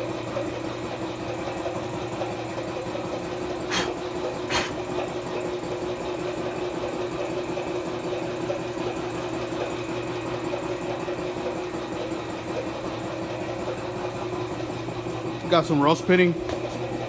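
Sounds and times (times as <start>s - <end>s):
small motor humming: 3.6s - 4.8s.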